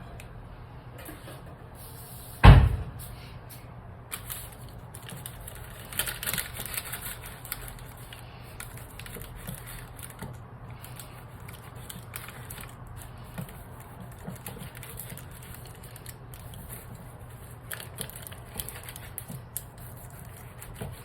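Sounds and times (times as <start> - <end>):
loud thump: 2.4 - 3.0.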